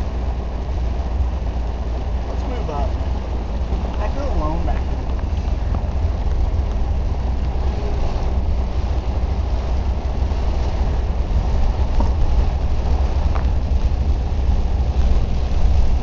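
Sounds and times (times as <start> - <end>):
low rumble inside car: 0.0 - 16.0
rain hissing on car: 0.0 - 16.0.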